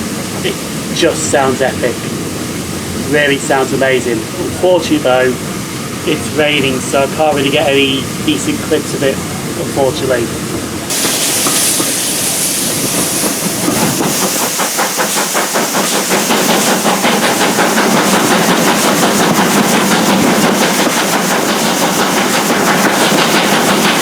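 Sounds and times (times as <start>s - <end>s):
steady rushing hiss: 0.0s - 24.0s
steam train beats at speed: 0.0s - 24.0s.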